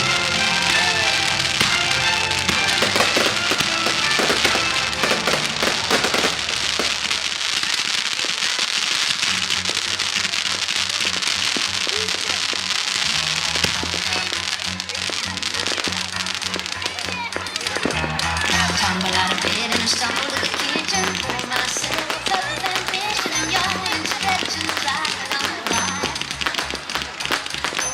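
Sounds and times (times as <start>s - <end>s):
fireworks bursting and crackling: 0.0s - 27.9s.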